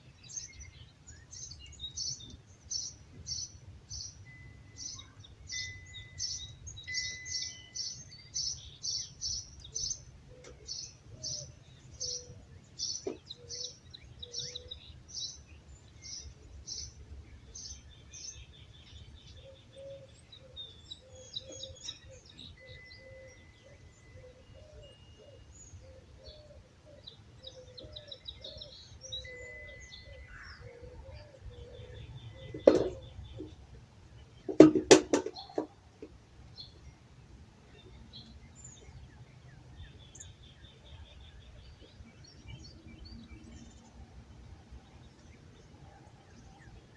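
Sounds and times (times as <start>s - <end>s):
bird trills: 1.4s - 14.8s, 19.4s - 33.6s
low wavering bird call: 19.8s - 28.5s, 29.1s - 32.6s.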